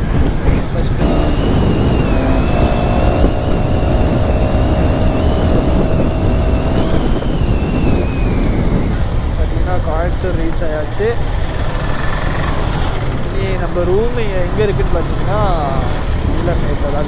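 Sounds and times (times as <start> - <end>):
motorcycle engine: 0.0 - 16.5
wind buffeting microphone: 0.0 - 17.0
steady high whine: 1.0 - 10.5.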